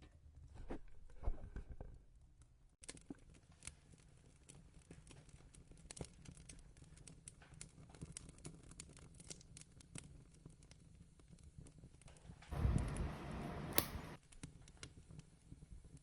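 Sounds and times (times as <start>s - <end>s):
wood fire crackling: 2.8s - 16.0s
low steady rumble: 12.5s - 14.2s.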